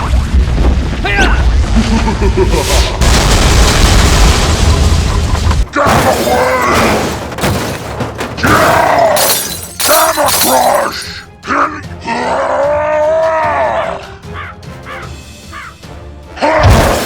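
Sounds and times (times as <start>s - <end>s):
loud crashing hits: 3.0s - 10.5s
background music: 8.3s - 17.0s.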